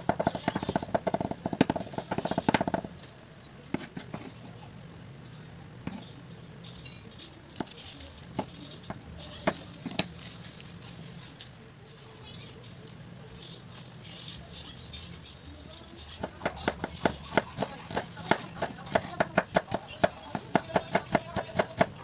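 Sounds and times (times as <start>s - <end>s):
knife chopping on wooden board: 0.0s - 2.9s, 16.2s - 22.0s
knife cutting onion on board: 0.0s - 2.9s, 3.7s - 4.4s, 15.9s - 22.0s.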